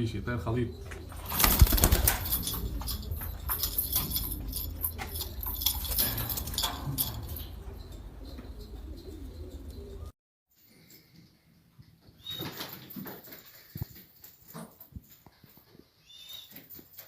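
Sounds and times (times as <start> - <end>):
pigeons cooing: 0.0 - 10.1
steady low hum: 0.0 - 10.1.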